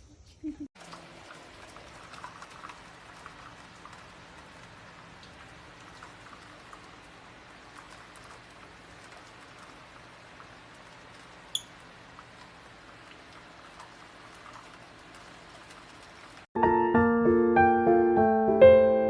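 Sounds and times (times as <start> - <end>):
piano music: 16.6 - 19.0.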